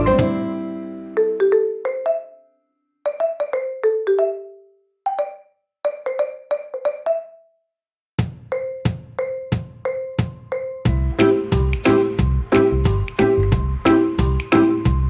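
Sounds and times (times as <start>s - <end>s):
light plucked melody: 0.0s - 1.7s, 10.9s - 15.0s.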